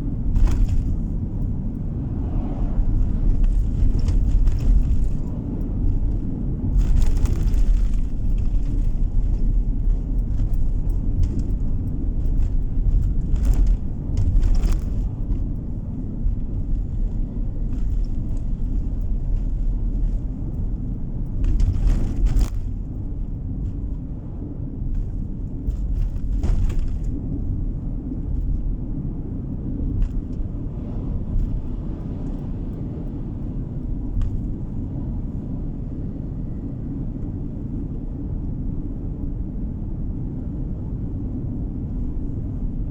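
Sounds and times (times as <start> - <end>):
tyre and engine rumble: 0.0 - 42.9.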